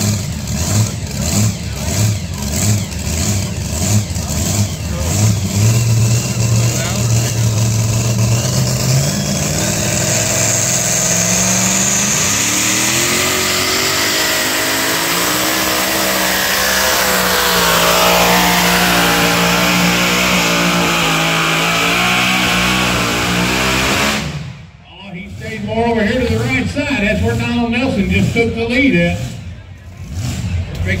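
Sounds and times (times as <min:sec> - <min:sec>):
truck engine revving: 0:00.0 - 0:31.0.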